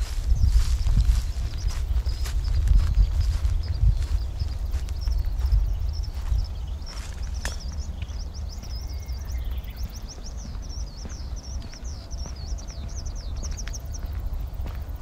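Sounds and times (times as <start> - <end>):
songbird chirping: 0.0 - 15.0
steady low rumble: 0.0 - 15.0.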